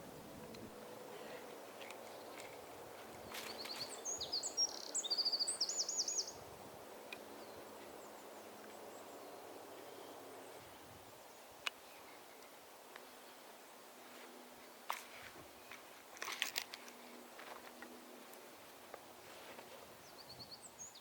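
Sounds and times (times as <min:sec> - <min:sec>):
faint outdoor hush: 0:00.0 - 0:21.0
songbird chirping and trilling: 0:00.4 - 0:11.7, 0:20.0 - 0:21.0.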